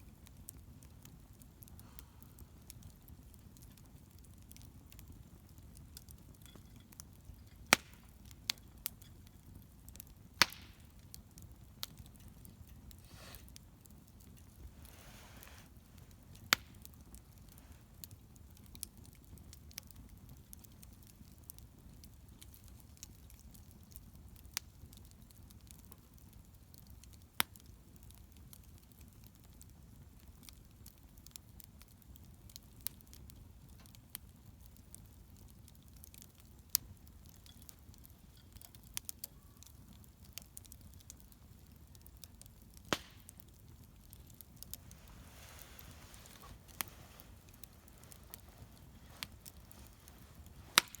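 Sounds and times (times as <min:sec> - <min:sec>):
bonfire crackling and popping: 0:00.0 - 0:51.0.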